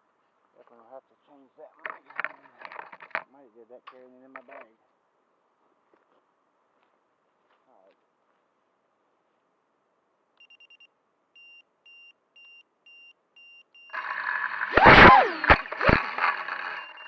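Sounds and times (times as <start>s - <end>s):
high electronic beeps: 11.4s - 17.0s
drone motors and propellers whining: 13.9s - 17.0s.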